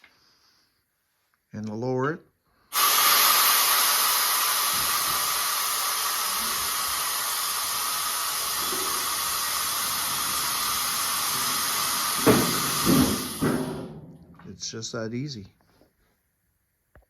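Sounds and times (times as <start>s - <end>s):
air venting hiss: 2.6s - 15.4s.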